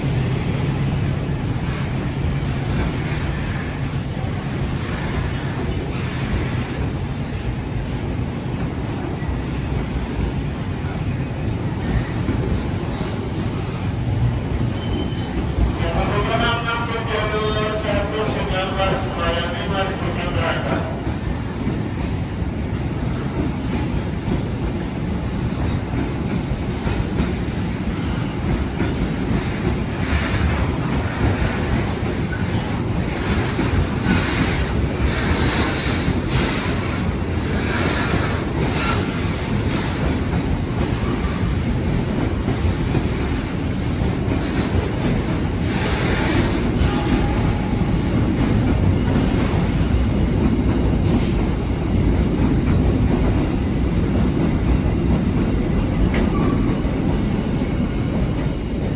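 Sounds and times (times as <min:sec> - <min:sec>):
freight train wagons rolling: 0:08.5 - 0:58.9
wheel squeal: 0:14.7 - 0:15.4, 0:51.1 - 0:51.9.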